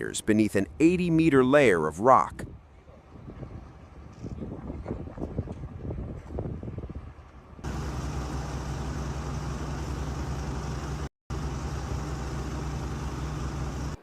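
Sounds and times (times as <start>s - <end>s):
vehicle engine droning: 7.6s - 14.0s.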